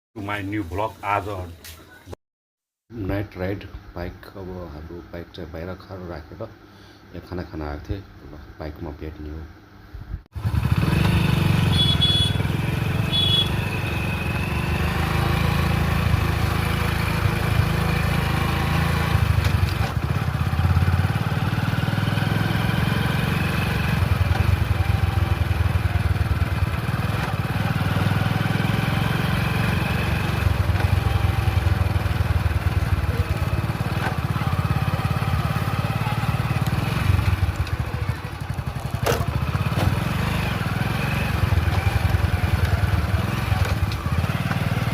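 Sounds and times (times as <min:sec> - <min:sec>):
motorcycle engine running: 0:10.3 - 0:44.9.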